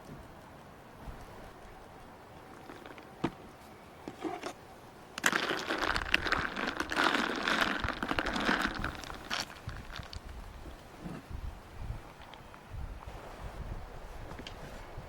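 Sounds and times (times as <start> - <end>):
crinkly material rustling: 2.4 - 4.6, 5.2 - 11.2.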